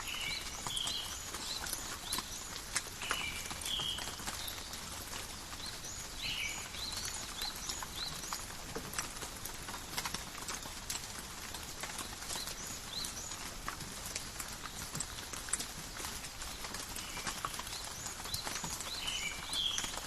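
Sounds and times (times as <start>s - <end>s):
drops ticking on leaves: 0.0s - 20.0s
steady rain: 0.0s - 20.0s
bird chirping: 5.6s - 8.4s, 17.0s - 20.0s.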